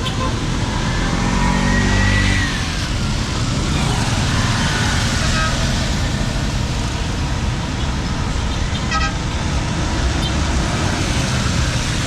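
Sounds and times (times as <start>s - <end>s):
road traffic noise: 0.0s - 12.0s
engine passing close: 0.6s - 7.1s.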